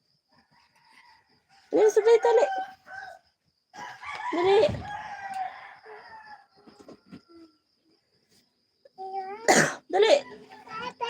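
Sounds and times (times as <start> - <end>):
rooster crowing: 0.6 - 6.8.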